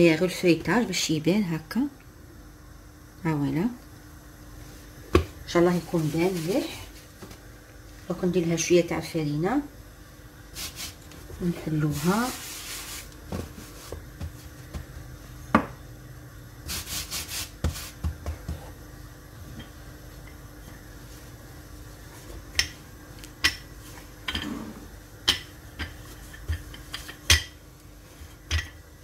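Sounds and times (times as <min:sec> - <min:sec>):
rolling pin rubbing on dough: 0:11.8 - 0:14.4, 0:16.7 - 0:18.7.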